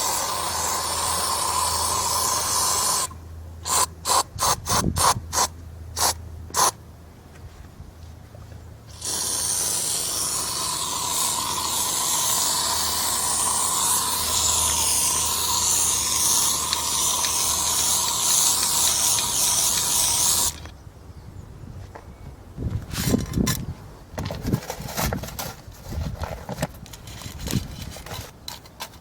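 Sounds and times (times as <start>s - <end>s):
aerosol can spraying hiss: 0.0s - 3.1s, 8.9s - 20.6s.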